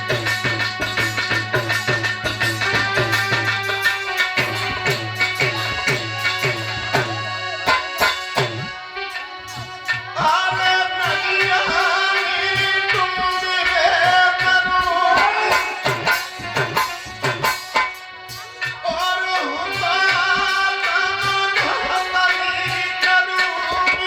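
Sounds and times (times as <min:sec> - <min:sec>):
hand drum beating: 0:00.0 - 0:10.7, 0:14.4 - 0:18.5
sustained melody line: 0:00.0 - 0:21.0.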